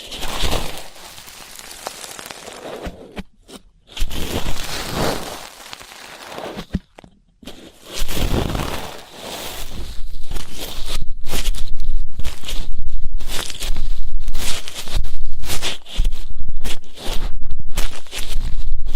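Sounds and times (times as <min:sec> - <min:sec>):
earpick scraping microphone: 0:07.4 - 0:18.9.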